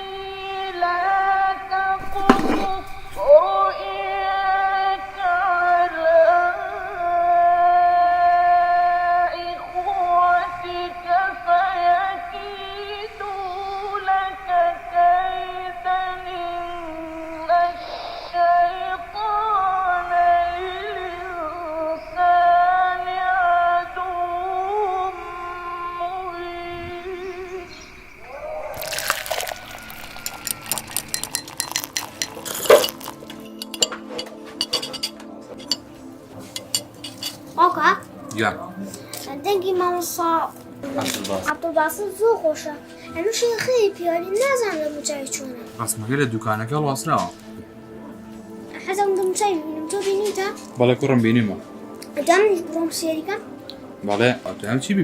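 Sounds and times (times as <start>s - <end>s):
person reciting melodically: 0.0s - 32.1s, 48.7s - 55.0s
tea pouring: 2.0s - 3.3s, 28.4s - 34.0s
glasses and teaspoons clinking: 28.8s - 37.6s.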